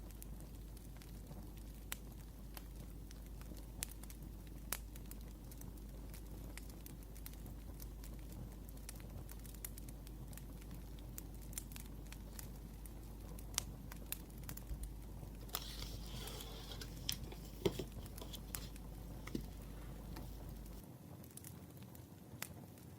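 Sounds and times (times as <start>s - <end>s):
wood fire crackling: 0.0s - 22.9s
paper rustling: 15.3s - 20.8s.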